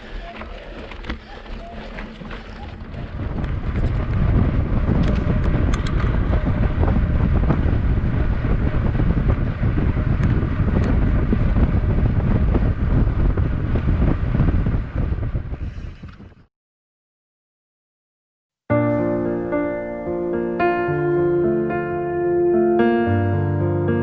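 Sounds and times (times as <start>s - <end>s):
wind buffeting microphone: 0.0s - 16.5s
scattered clicks: 5.0s - 6.2s.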